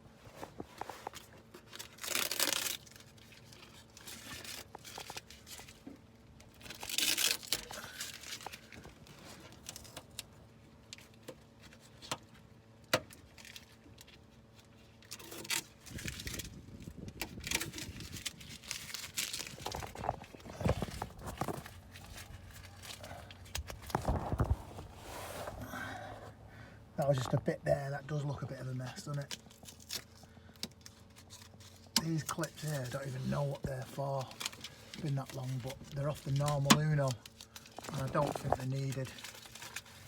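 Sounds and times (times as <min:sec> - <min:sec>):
paper and tape tearing and crumpling: 0:01.1 - 0:05.8, 0:06.5 - 0:10.2, 0:13.2 - 0:25.4, 0:30.8 - 0:40.0.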